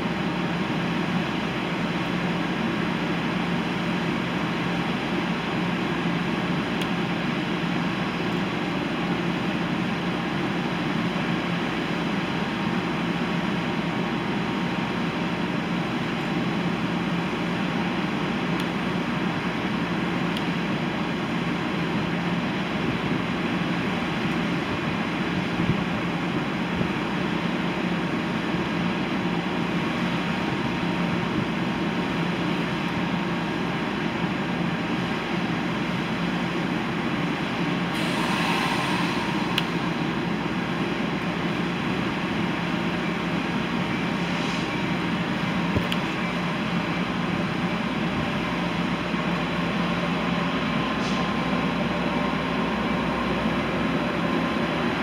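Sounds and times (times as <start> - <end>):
train rumbling: 0.0 - 55.0
brief hiss: 37.9 - 41.5, 44.2 - 44.8, 50.9 - 51.4
low even hum: 37.9 - 43.1.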